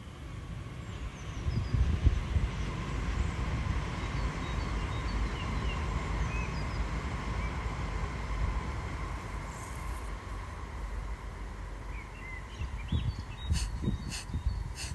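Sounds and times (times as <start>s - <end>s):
small birds chirping: 11.9s - 14.9s.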